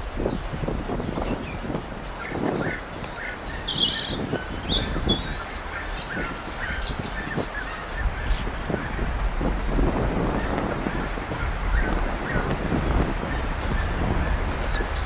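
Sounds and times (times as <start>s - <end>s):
birds chirping: 0.0s - 15.0s
steady low rumble: 7.8s - 15.0s.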